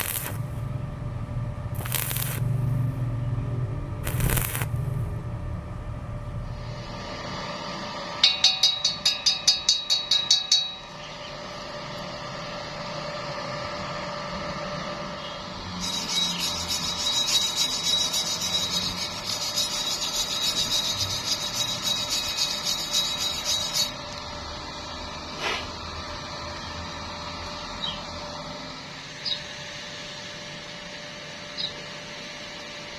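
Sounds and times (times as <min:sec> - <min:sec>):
welding arc crackling: 0:00.0 - 0:00.7, 0:01.7 - 0:03.1, 0:04.0 - 0:05.2, 0:15.8 - 0:24.0
welding arc pulses: 0:00.0 - 0:00.7, 0:01.7 - 0:03.1, 0:04.0 - 0:05.2, 0:15.8 - 0:24.0.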